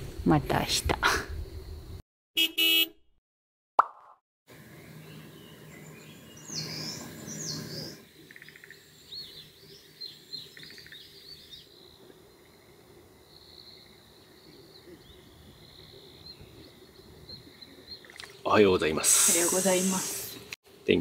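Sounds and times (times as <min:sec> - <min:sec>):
wild birds calling: 0:04.6 - 0:20.5.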